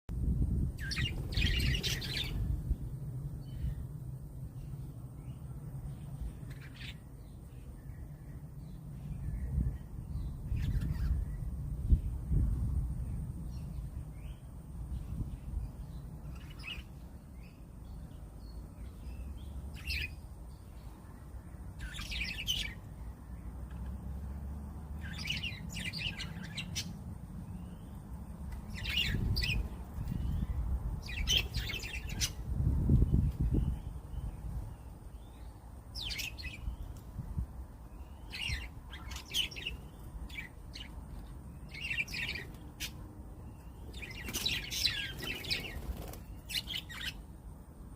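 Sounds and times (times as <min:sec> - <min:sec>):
steady low rumble: 0:00.1 - 0:22.2
budgerigars chirping: 0:38.2 - 0:40.9, 0:43.8 - 0:47.2.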